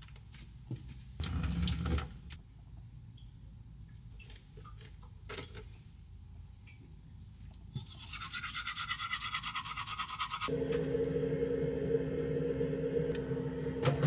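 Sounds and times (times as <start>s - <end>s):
steady low hum: 10.5s - 14.0s.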